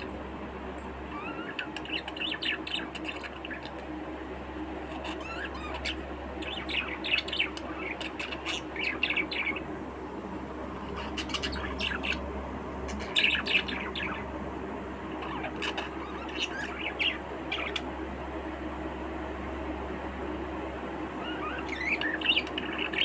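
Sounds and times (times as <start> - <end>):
steady low hum: 0.0 - 23.0
budgerigars chirping and chattering: 1.1 - 3.9, 4.8 - 9.7, 10.7 - 12.2, 12.9 - 14.3, 15.1 - 17.9, 21.2 - 23.0.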